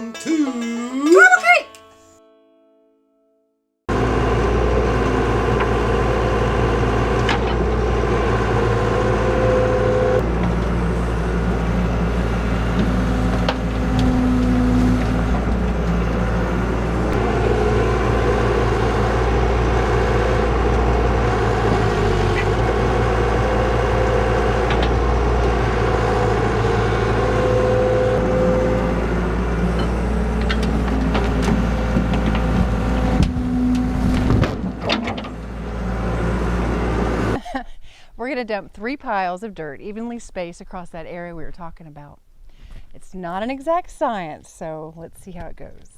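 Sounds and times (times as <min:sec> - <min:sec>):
heavy equipment engine rumbling: 0:03.9 - 0:38.4.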